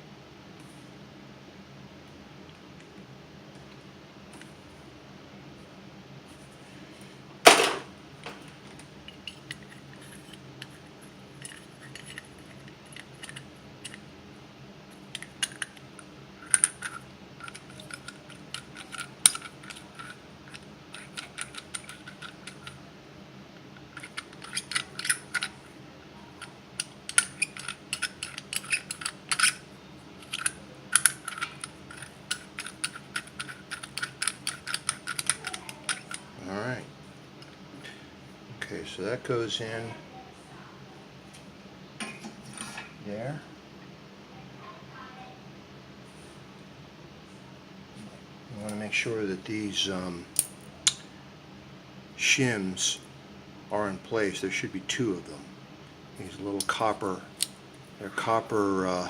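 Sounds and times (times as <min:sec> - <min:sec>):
small metal parts clinking: 0:07.5 - 0:07.9, 0:08.7 - 0:14.0, 0:16.4 - 0:22.8, 0:23.8 - 0:25.6, 0:26.8 - 0:29.6, 0:30.2 - 0:36.3.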